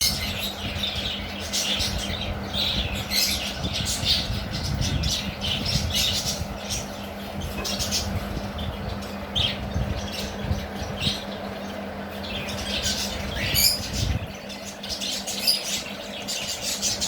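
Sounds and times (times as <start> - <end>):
bird chicks calling: 0.0 - 17.0
steady low hum: 0.0 - 17.0.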